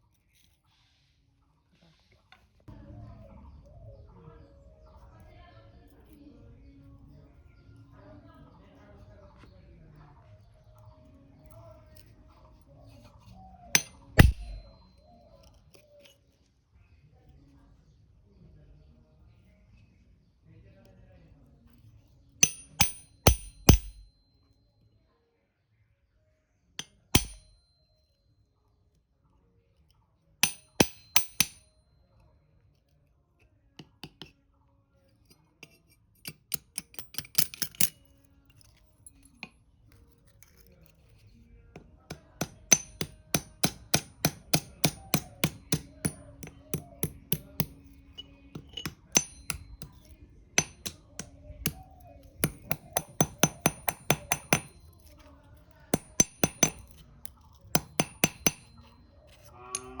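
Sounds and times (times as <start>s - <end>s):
hammer tapping on steel: 13.8s - 14.8s, 22.4s - 24.1s, 26.8s - 27.6s, 30.4s - 31.7s, 41.8s - 55.1s, 55.9s - 57.0s, 57.7s - 58.9s.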